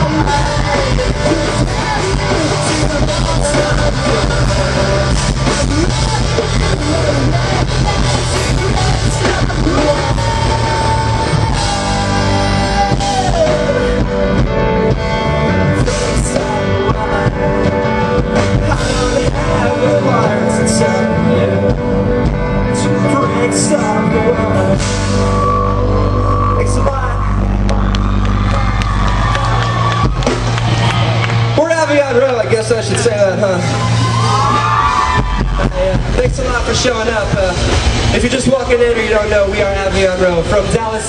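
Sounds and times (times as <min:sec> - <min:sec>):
person singing: 0:00.0 - 0:29.6
live rock band playing: 0:00.0 - 0:41.0.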